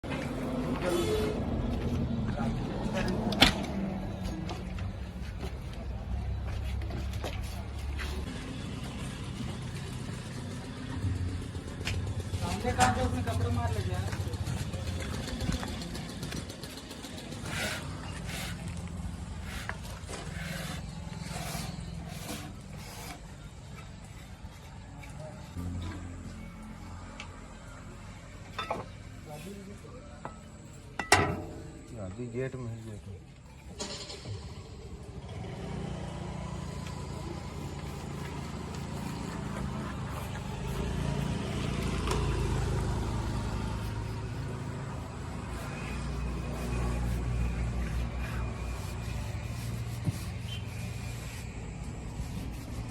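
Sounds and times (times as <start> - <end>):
diesel engine running: 0.0 - 22.0, 33.8 - 52.9
heavy diesel engine running: 7.6 - 21.4.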